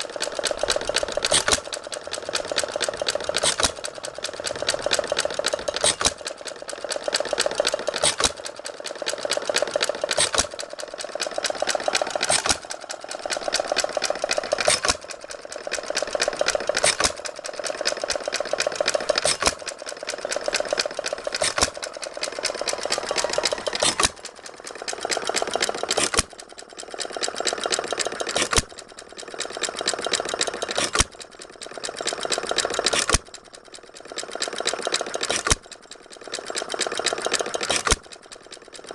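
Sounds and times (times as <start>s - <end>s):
engine clattering: 0.0s - 38.9s
hit-and-miss engine firing: 0.8s - 26.4s.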